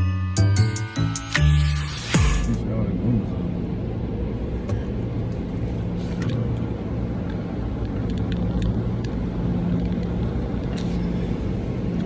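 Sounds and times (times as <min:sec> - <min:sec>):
car engine and road drone: 0:00.4 - 0:12.0.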